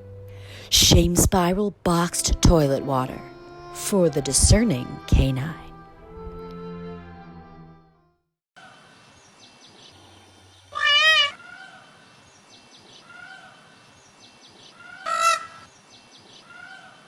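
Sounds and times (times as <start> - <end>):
soft animal calls: 9.9 - 12.0, 12.9 - 13.8, 14.7 - 15.7, 16.4 - 17.0
loud wavering animal cries: 10.0 - 11.9, 14.8 - 15.6.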